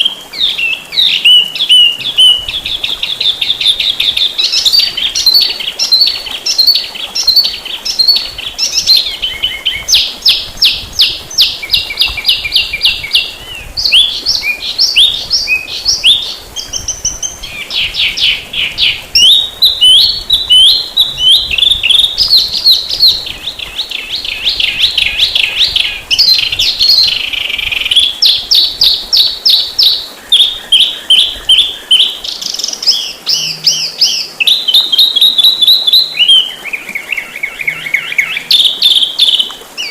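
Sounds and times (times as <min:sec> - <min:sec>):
songbird trills and chirps: 0:00.0 - 0:39.9.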